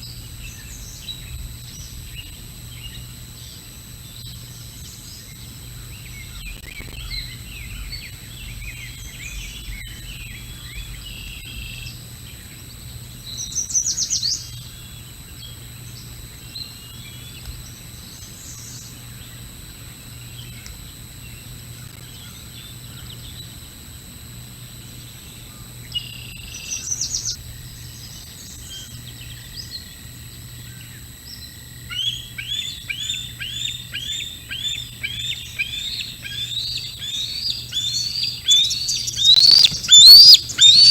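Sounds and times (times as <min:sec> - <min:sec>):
low electrical hum: 0:00.0 - 0:40.9
bird chirps and twitters: 0:31.9 - 0:40.9
repeated falling chirps: 0:38.0 - 0:40.9.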